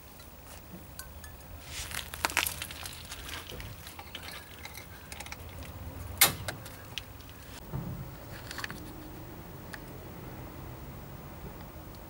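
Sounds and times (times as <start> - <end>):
metallic clicks and scrapes: 1.7 - 7.6, 8.2 - 9.9.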